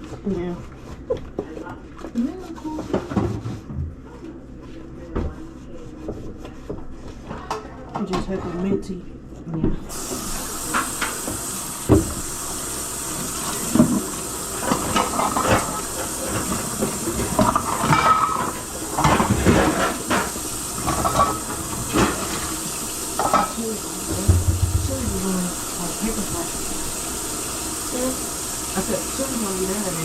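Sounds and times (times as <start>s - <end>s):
tap running into sink: 9.9s - 30.0s
dishes clattering: 13.3s - 25.8s.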